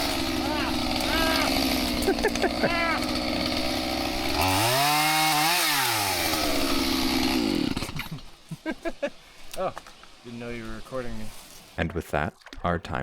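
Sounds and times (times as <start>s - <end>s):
chainsaw engine revving: 0.0s - 8.4s.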